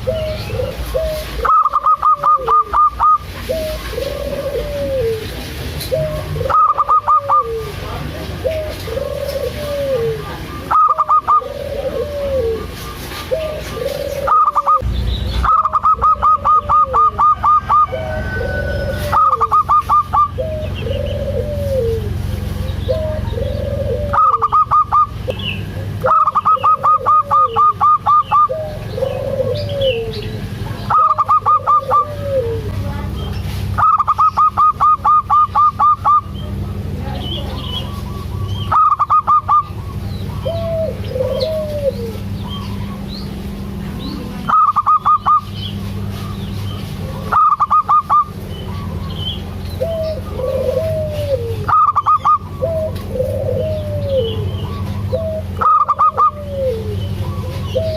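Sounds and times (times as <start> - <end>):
soft low dove coo: 0.0 - 14.9, 15.5 - 25.1, 25.7 - 33.1, 37.9 - 43.1, 49.8 - 57.9
low steady hum: 0.0 - 57.9.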